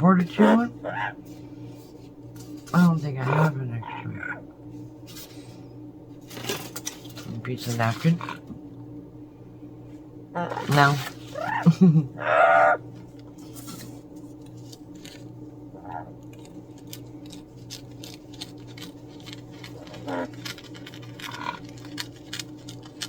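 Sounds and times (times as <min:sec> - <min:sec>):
low electrical hum: 0:00.0 - 0:23.0
parrot chirping: 0:10.4 - 0:12.8.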